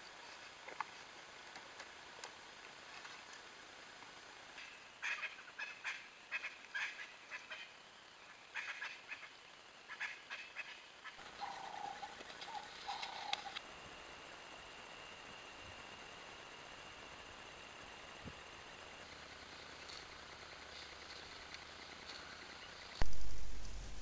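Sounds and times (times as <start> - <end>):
birds chattering: 4.6 - 13.6, 18.0 - 23.0
low bird calls: 4.6 - 13.6.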